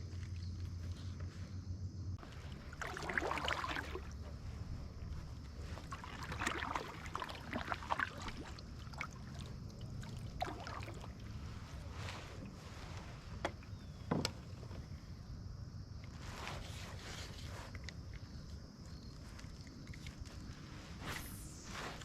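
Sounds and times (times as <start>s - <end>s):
low steady rumble: 0.0s - 16.4s
paddle swishing through water: 2.2s - 15.1s, 16.0s - 18.6s.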